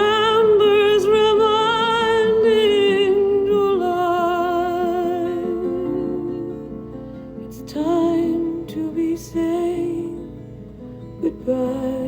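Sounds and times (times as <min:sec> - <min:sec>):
person singing slow song: 0:00.0 - 0:12.0.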